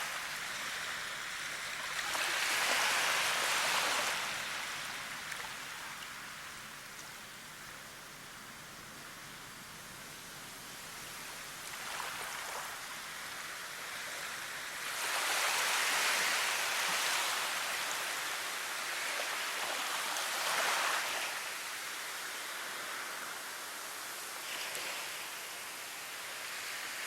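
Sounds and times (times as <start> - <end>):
rushing water: 0.0 - 7.5.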